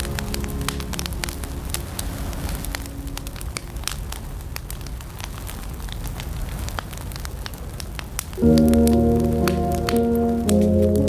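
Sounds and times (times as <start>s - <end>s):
held music notes: 0.0s - 4.2s, 8.4s - 11.0s
wood fire crackling: 0.0s - 11.0s.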